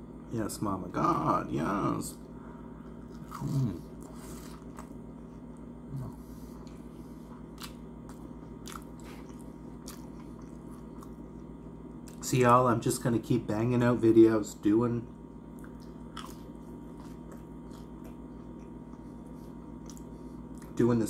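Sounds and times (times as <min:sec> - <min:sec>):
crunchy chewing: 0:02.8 - 0:12.3, 0:15.5 - 0:20.8
person humming: 0:03.4 - 0:03.9.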